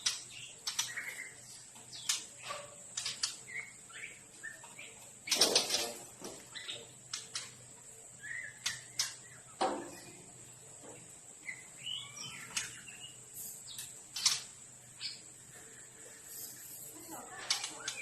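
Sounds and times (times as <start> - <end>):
birds chirping and whistling: 0.0 - 16.6, 17.4 - 18.0.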